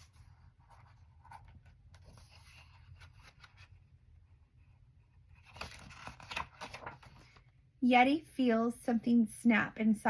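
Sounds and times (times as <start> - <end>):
book pages turning: 0.0 - 7.5.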